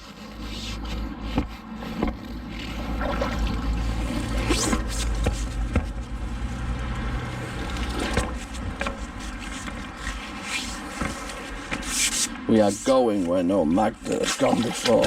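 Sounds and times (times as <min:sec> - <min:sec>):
knocks and scrapes: 0:00.0 - 0:12.9
river water sloshing and trickling: 0:02.4 - 0:12.2, 0:14.0 - 0:15.0.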